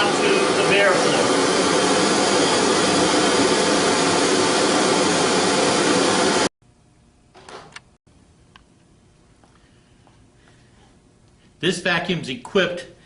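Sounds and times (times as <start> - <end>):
vacuum cleaner running: 0.0 - 6.5.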